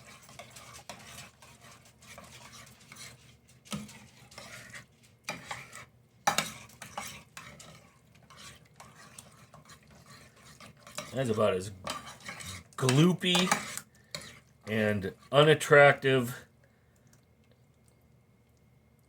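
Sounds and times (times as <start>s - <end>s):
spoon scraping and clinking on dish: 0.0s - 14.4s
spoon stirring thick mixture: 0.0s - 18.7s.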